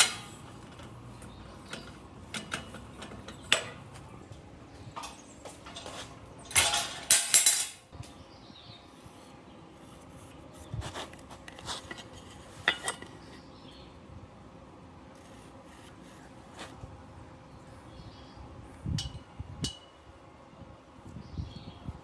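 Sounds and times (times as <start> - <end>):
metal scraping and clattering: 0.0 - 4.2, 5.6 - 7.8.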